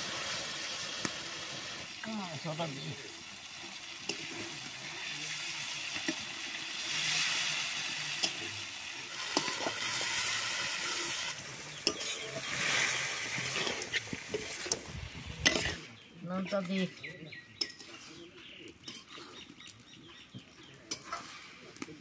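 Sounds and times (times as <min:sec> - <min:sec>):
chicken sizzling in hot oil: 0:00.0 - 0:16.1
metal spatula scraping a pan: 0:04.0 - 0:15.9, 0:20.9 - 0:21.6.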